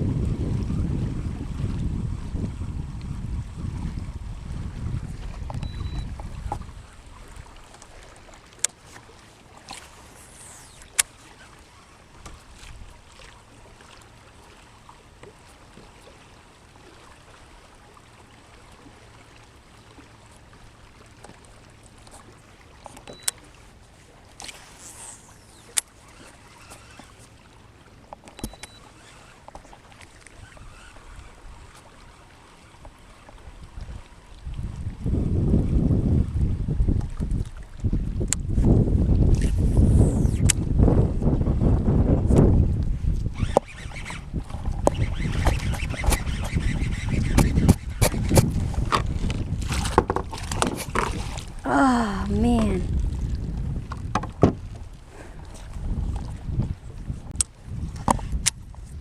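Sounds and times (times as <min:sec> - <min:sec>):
water and hull noise: 0:00.0 - 0:59.0
sharp clicks: 0:44.8 - 0:48.5.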